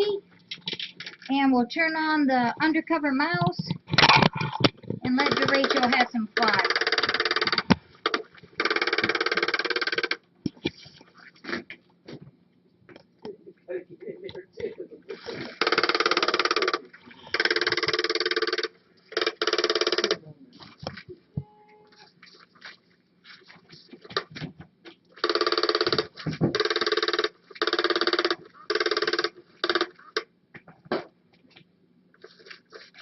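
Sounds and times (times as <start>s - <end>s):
toy motor buzzing: 5.2s - 7.6s, 8.6s - 10.2s, 15.6s - 20.2s, 25.2s - 30.2s.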